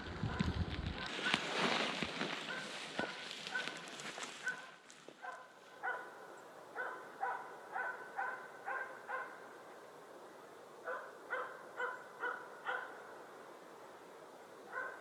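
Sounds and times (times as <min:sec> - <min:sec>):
dog barking: 0:02.5 - 0:03.8, 0:04.4 - 0:09.4, 0:10.8 - 0:13.0, 0:14.7 - 0:15.0.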